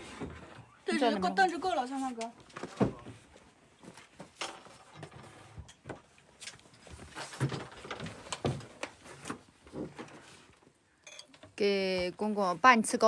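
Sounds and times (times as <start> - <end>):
tableware and stools clattering: 11.0 - 11.5.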